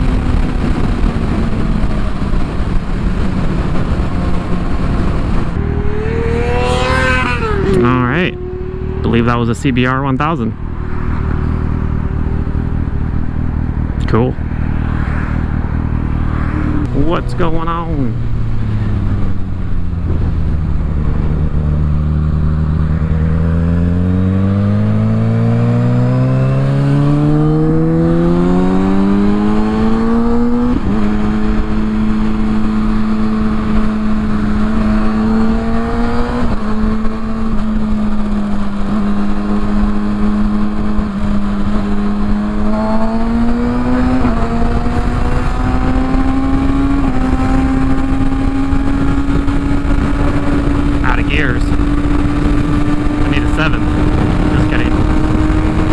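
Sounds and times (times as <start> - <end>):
wind noise over microphone: 0.0 - 9.1, 10.6 - 55.9
motorcycle engine revving: 0.0 - 55.9.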